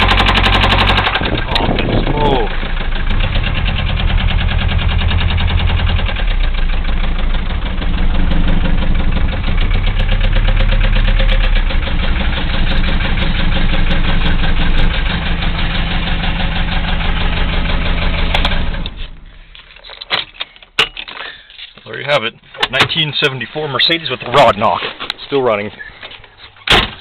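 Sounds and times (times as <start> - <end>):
rapid even engine knocking: 0.0 - 18.1
diesel engine idling: 0.0 - 19.6.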